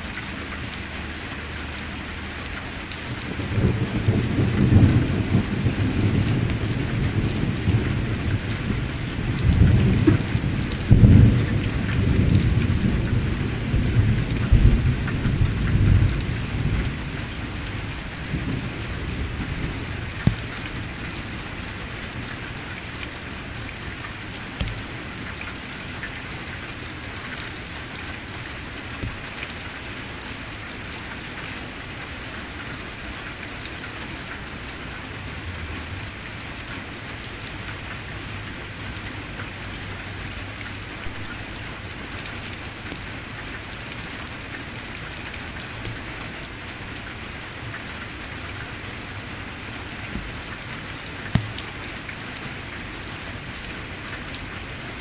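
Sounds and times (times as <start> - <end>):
heavy rain falling: 0.0 - 55.0
sharp taps: 51.4 - 51.6.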